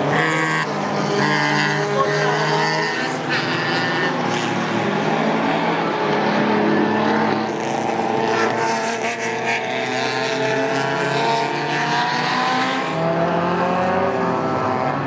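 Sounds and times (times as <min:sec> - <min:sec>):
race car engines: 0:00.0 - 0:15.0.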